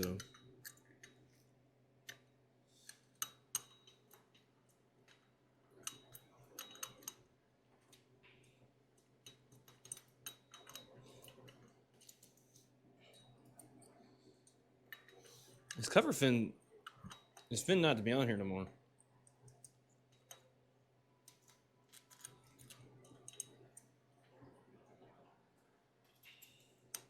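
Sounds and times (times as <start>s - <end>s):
metal parts and tools clinking: 9.3s - 12.4s.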